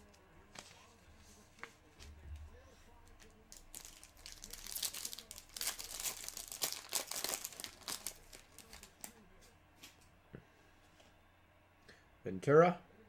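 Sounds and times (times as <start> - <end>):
foil wrapper crinkling and tearing: 3.1 - 9.2.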